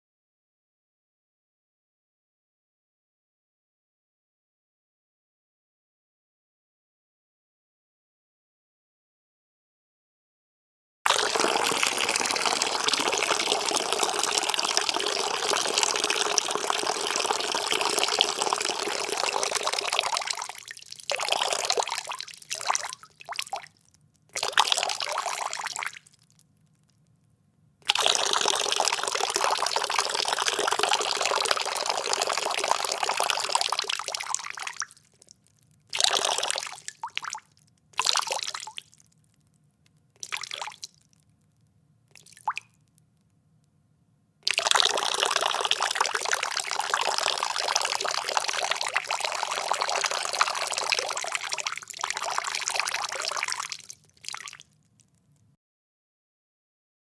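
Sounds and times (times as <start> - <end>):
urine streaming into toilet water: 11.1 - 26.4, 27.9 - 35.3, 35.9 - 37.4, 44.5 - 54.6.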